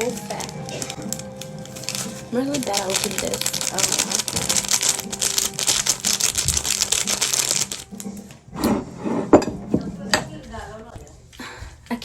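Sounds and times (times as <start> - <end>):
plastic packet crinkling and tearing: 0.0 - 8.1.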